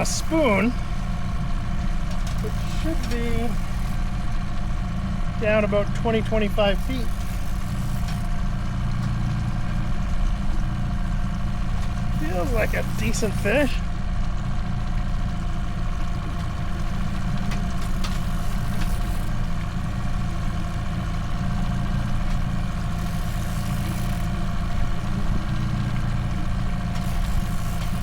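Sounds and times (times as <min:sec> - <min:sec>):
boat motor droning: 0:00.0 - 0:28.0.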